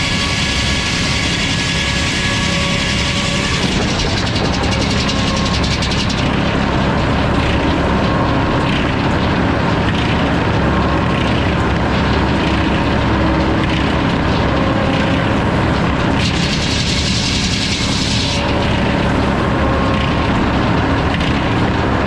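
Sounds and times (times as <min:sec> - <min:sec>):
saw blade cutting wood: 0:00.0 - 0:06.3, 0:16.1 - 0:18.6
steady engine note: 0:00.0 - 0:22.0.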